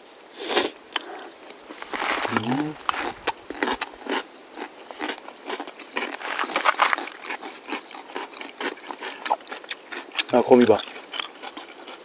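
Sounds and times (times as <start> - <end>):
chewing and crunching noodles: 0.4 - 12.0
mouth smacks and clicks: 0.6 - 4.2.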